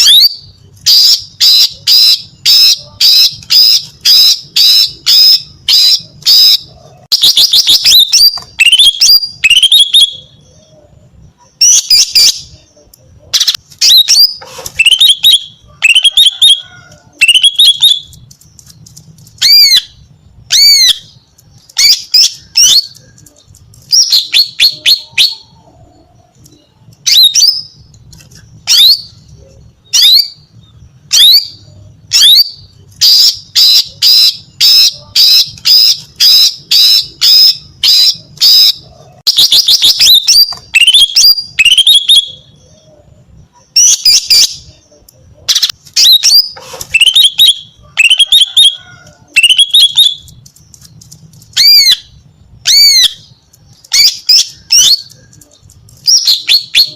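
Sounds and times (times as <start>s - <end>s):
bird chirps and whistles: 0.0s - 10.8s, 13.4s - 16.6s, 31.1s - 43.0s, 45.5s - 48.8s, 56.0s - 56.9s.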